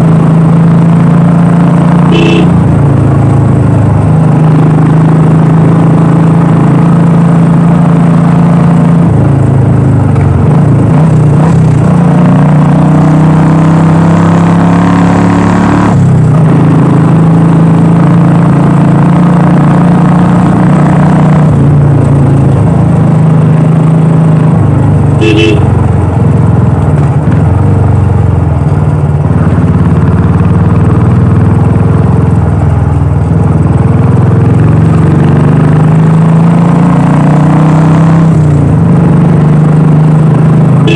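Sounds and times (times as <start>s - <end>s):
motorcycle engine running: 0.0s - 40.9s
short horn toot: 2.1s - 2.6s, 25.2s - 25.8s.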